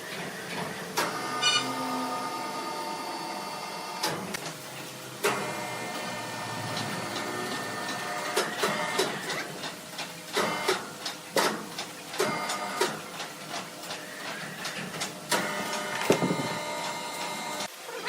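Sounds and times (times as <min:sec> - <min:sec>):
sawmill saw whine: 0:00.4 - 0:04.0, 0:05.2 - 0:09.4.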